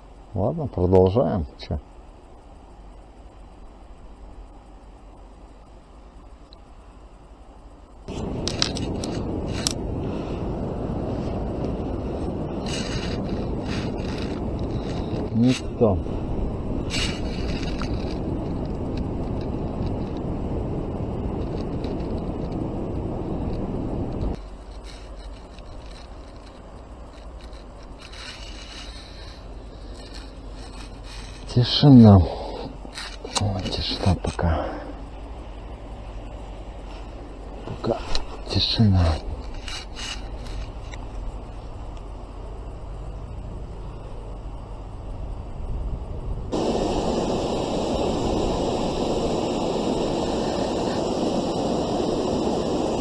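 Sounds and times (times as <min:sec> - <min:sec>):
wind gust on microphone: 0:08.1 - 0:53.0
fishing reel scraping and clicking: 0:12.6 - 0:15.6, 0:16.9 - 0:20.2, 0:24.4 - 0:31.6, 0:32.8 - 0:34.2, 0:39.0 - 0:41.0.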